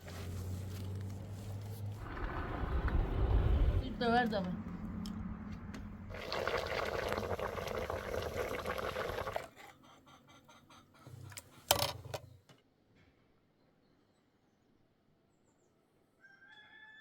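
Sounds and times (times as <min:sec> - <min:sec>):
liquid pouring and splashing: 0:06.1 - 0:09.5.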